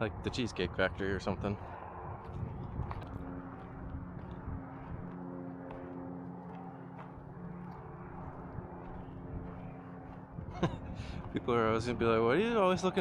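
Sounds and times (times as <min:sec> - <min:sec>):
small airplane droning: 0:00.0 - 0:13.0
footsteps on a trail: 0:01.6 - 0:11.4.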